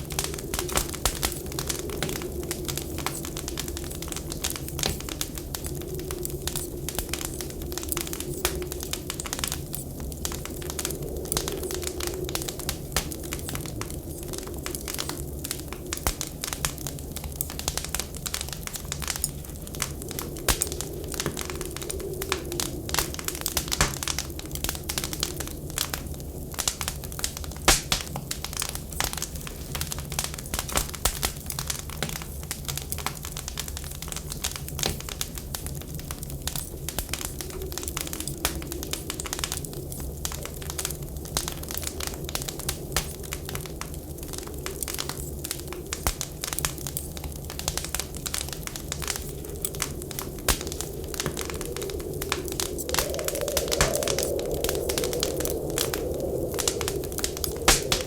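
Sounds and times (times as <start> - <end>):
low rumble of wind: 0.0 - 58.0
wood fire crackling and popping: 0.0 - 58.0.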